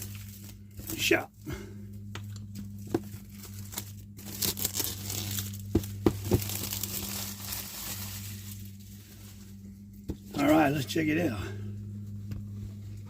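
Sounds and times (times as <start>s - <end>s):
plastic wrapping tearing and crinkling: 0.0s - 1.1s, 2.5s - 9.5s.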